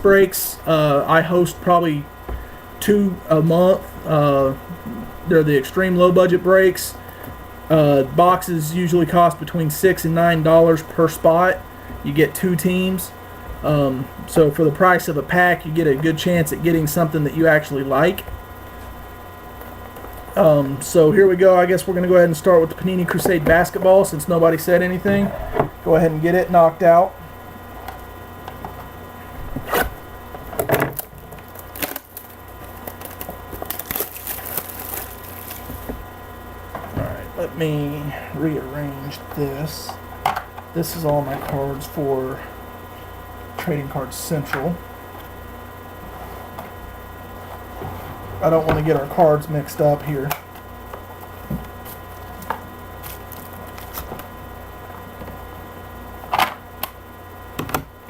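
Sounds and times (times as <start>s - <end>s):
steady electrical hum: 0.0s - 58.0s
packaging crinkling and crackling: 30.5s - 36.1s, 53.0s - 54.3s.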